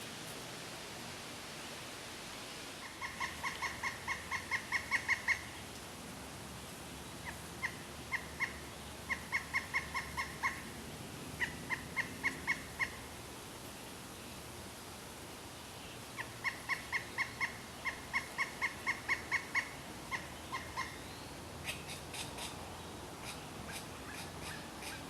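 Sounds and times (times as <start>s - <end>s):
woodpecker ringing call: 2.8s - 5.5s, 7.2s - 10.6s, 16.2s - 22.5s.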